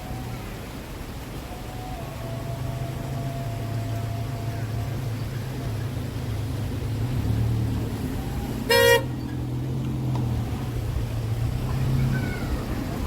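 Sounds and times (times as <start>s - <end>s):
traffic rumble: 0.0s - 13.0s
car horn toot: 8.7s - 9.2s.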